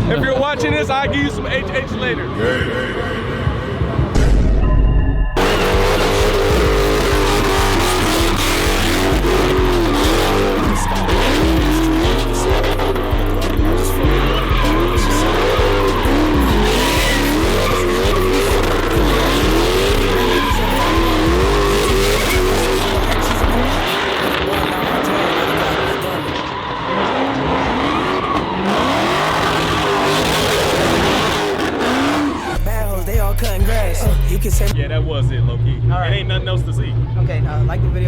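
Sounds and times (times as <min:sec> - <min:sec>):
music with deep bass: 0:00.0 - 0:24.5, 0:28.7 - 0:38.0
tyres squealing: 0:05.4 - 0:34.1
car engine revving: 0:05.4 - 0:38.0.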